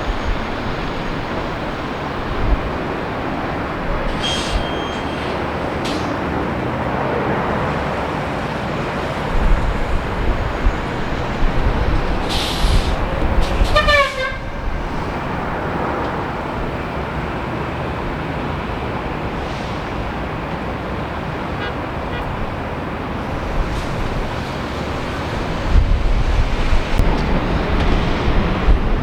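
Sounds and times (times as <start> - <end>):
jet engine roar: 0.0 - 16.9.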